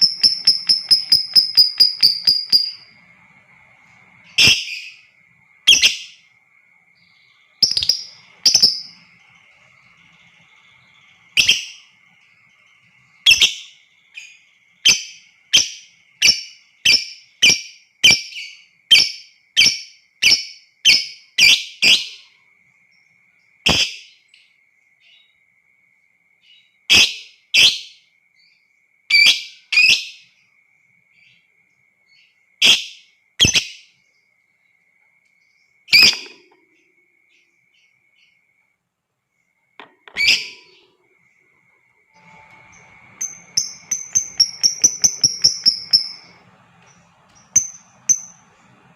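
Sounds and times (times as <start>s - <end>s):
lovebird calls: 0.0s - 6.3s, 7.0s - 22.2s, 35.9s - 36.8s, 40.0s - 41.0s, 42.2s - 48.5s
faint high whine: 0.0s - 17.4s, 34.0s - 48.9s.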